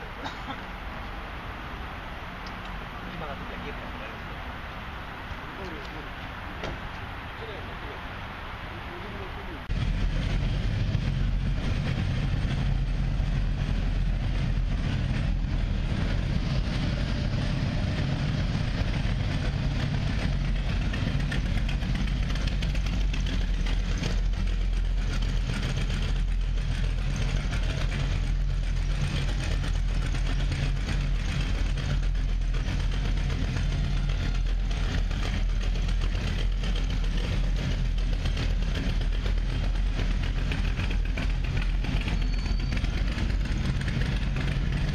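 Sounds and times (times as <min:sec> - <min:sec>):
motorcycle engine idling: 0:18.6 - 0:44.9.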